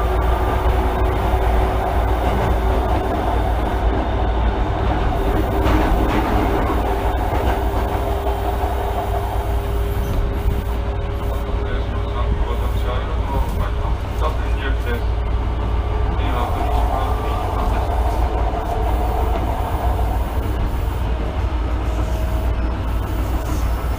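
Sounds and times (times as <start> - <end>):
subway train rumble: 0.0 - 23.9
wheels clicking over rail joints: 5.0 - 10.4
steady hum: 14.3 - 23.9.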